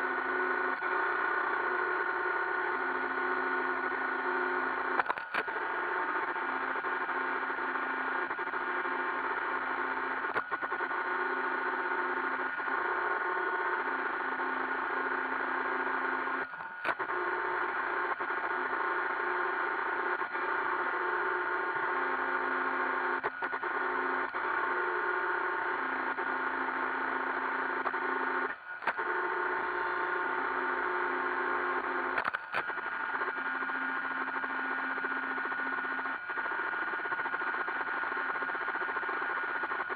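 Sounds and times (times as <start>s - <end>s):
brief clicks: 32.2s - 32.7s.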